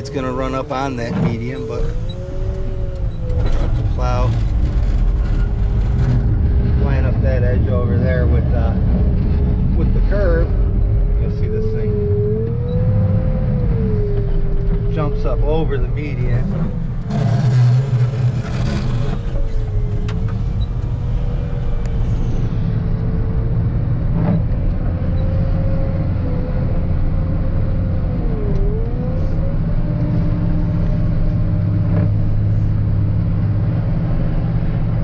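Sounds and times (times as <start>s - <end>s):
wheel loader diesel engine: 0.0s - 10.8s.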